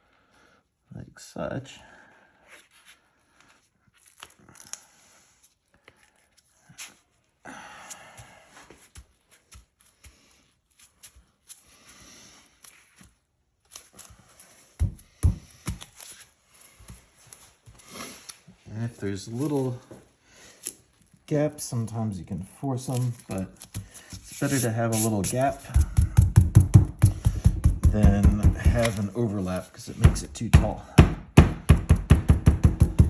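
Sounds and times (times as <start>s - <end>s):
sandpaper rustling and crinkling: 22.8s - 25.8s
low thumps: 25.8s - 28.8s.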